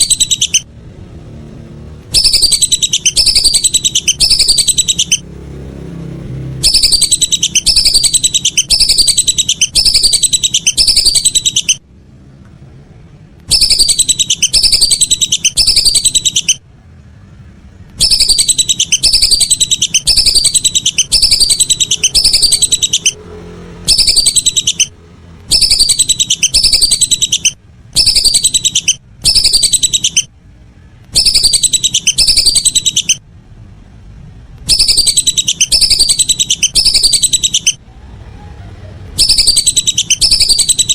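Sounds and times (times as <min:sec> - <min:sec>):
duck whistling calls: 0:00.0 - 0:00.7, 0:02.1 - 0:05.3, 0:06.6 - 0:11.8, 0:13.4 - 0:16.6, 0:18.0 - 0:23.2, 0:23.8 - 0:24.9, 0:25.5 - 0:30.3, 0:31.1 - 0:33.2, 0:34.7 - 0:37.8, 0:39.1 - 0:40.9.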